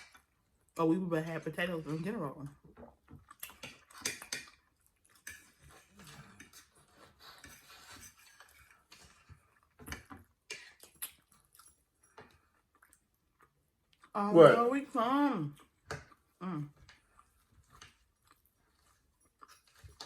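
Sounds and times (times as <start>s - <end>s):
chewing: 2.5s - 14.2s, 15.5s - 20.0s
cutlery clinking on plates: 3.5s - 4.6s.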